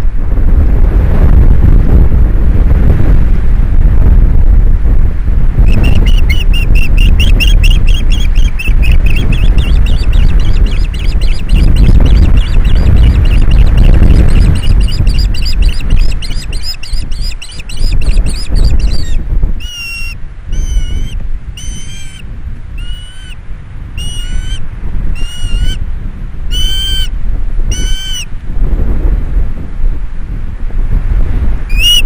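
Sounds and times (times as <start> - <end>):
wind rumbling on microphone: 0.0 - 32.0
birds chirping and calling: 5.7 - 22.2, 22.8 - 23.4, 24.0 - 24.6, 25.2 - 25.8, 26.5 - 27.1, 27.7 - 28.3.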